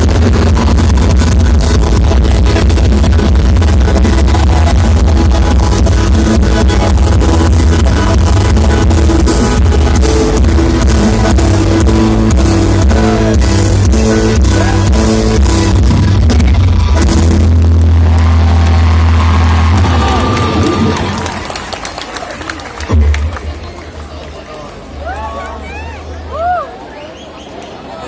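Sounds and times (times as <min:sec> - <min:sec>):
loud music with pounding bass: 0:00.0 - 0:21.2.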